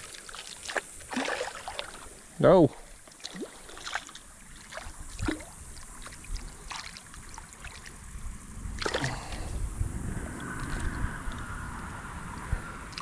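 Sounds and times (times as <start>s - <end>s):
creek water splashing: 0.0s - 13.0s
faint water trickle: 0.0s - 13.0s
low rumble: 8.2s - 13.0s.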